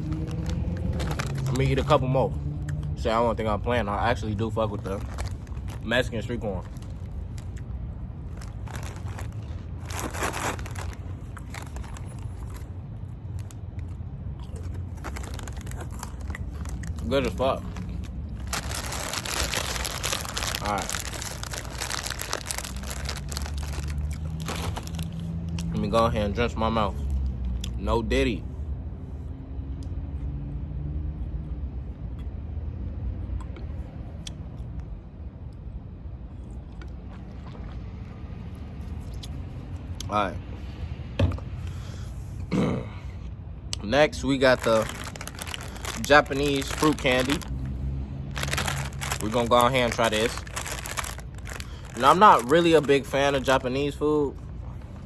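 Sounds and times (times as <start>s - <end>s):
bag rustling: 0.0s - 1.7s, 8.3s - 12.7s, 14.9s - 25.3s, 44.6s - 47.6s, 48.3s - 53.0s
snacks crunched and chewed: 0.0s - 3.0s, 4.4s - 26.1s, 27.0s - 27.8s, 36.4s - 40.0s, 43.7s - 55.0s
steady low rumble: 0.0s - 27.7s, 41.7s - 55.0s.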